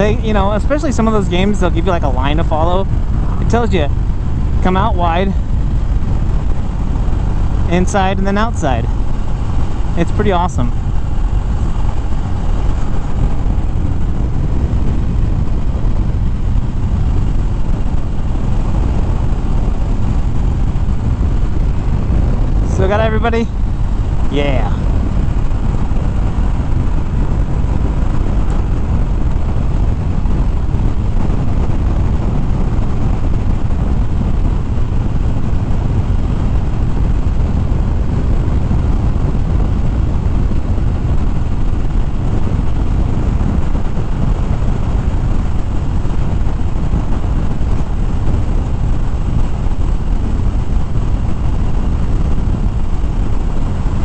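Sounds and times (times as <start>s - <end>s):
motorcycle engine running: 0.0s - 54.0s
wind rush over microphone: 0.0s - 54.0s.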